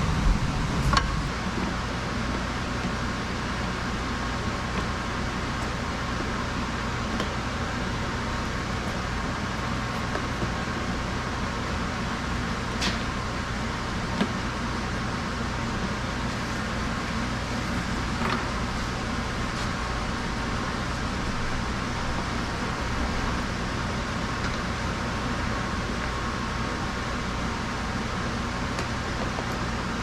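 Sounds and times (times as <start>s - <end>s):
mechanical hum and hiss: 0.0s - 30.0s.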